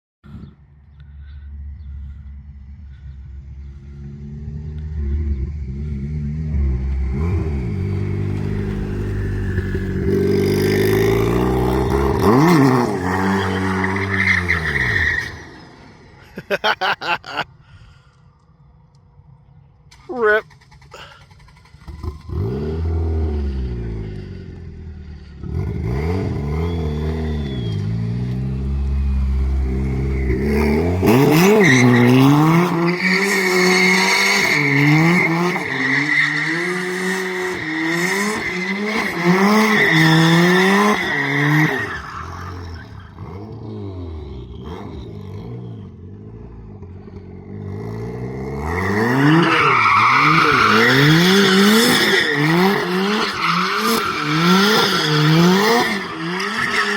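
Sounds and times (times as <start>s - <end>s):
car engine revving hard: 25.4s - 41.8s, 48.4s - 56.9s.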